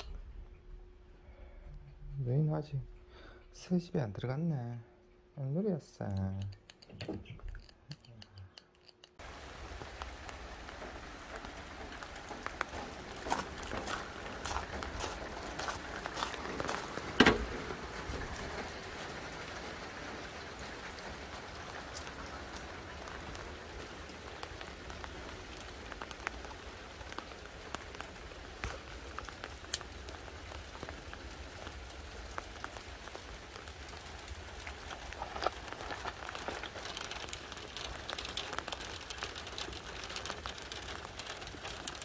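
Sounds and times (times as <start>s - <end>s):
heavy rain falling: 9.2s - 42.0s
drops ticking on a surface: 24.3s - 42.0s.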